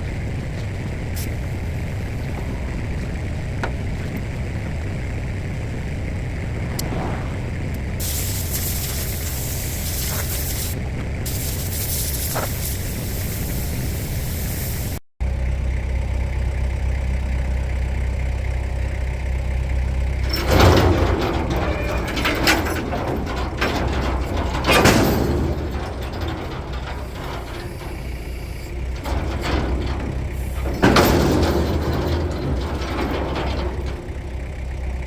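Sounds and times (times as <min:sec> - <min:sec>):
hiss: 0:08.0 - 0:15.0.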